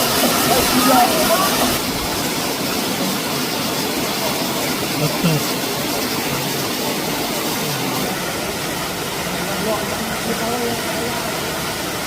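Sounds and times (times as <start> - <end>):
waterfall rushing: 0.0 - 12.0
faint voices: 0.1 - 11.7.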